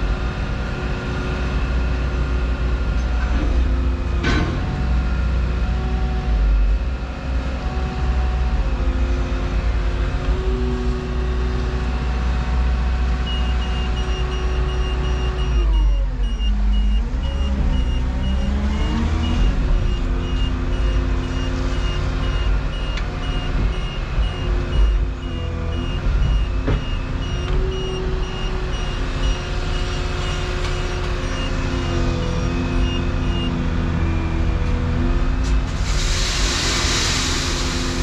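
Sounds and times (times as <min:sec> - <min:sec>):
excavator diesel engine running: 0:00.0 - 0:38.0
high-pitched beeping alarm: 0:13.3 - 0:33.6.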